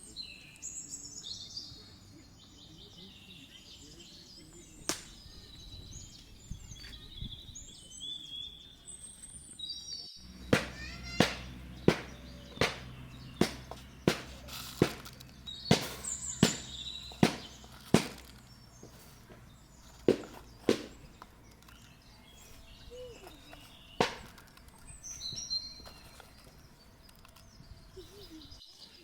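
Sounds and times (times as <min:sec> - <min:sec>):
sharp chopping strikes: 0:04.9 - 0:05.2, 0:10.3 - 0:19.4, 0:20.0 - 0:21.3, 0:24.0 - 0:24.5.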